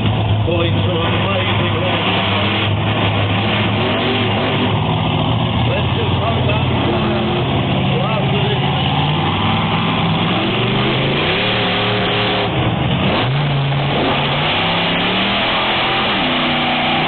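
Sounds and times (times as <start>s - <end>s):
truck engine revving hard: 0.0s - 17.0s.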